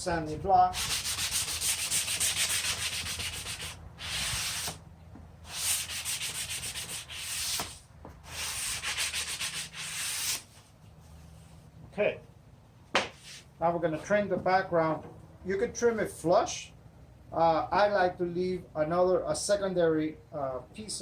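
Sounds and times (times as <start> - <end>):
sanding block rasping on wood: 0.7 - 4.8, 5.5 - 10.4.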